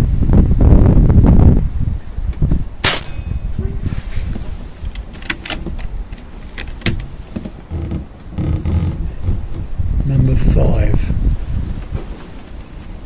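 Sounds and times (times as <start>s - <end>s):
wind noise on microphone: 0.0s - 13.0s
air rifle crack: 2.8s - 3.5s
rifle handling clicks: 2.9s - 3.2s.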